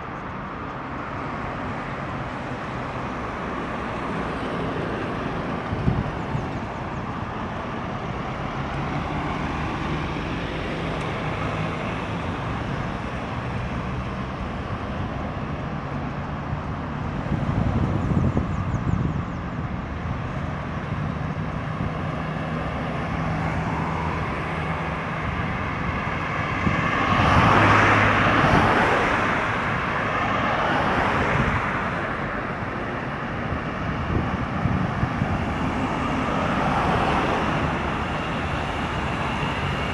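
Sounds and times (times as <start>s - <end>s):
vehicle engines and tyre noise: 0.0s - 39.9s
vehicle passing close by: 20.9s - 32.6s, 33.6s - 39.9s.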